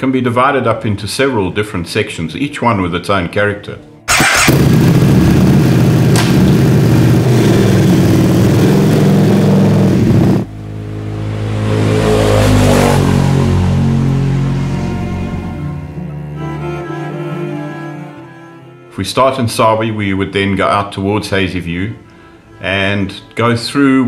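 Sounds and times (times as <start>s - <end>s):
motorcycle engine running: 4.1s - 15.3s
second engine note: 4.1s - 18.8s.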